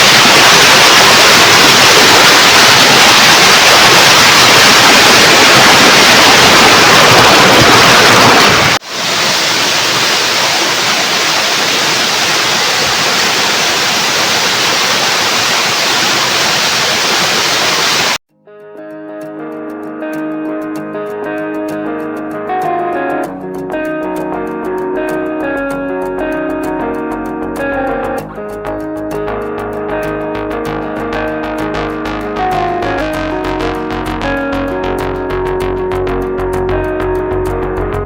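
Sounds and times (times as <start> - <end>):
waterfall rushing: 0.0 - 18.2.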